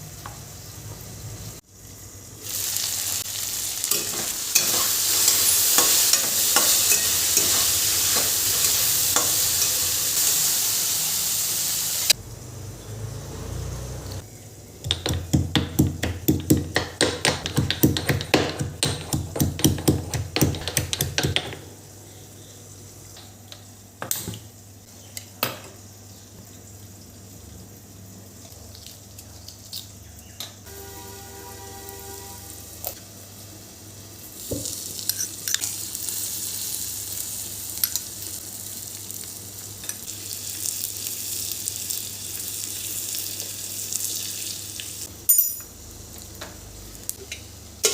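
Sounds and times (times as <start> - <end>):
food sizzling in a hot pan: 0.1 - 12.2, 30.6 - 47.9
rapid knocking: 14.8 - 21.6
short pitched tone: 30.7 - 32.9.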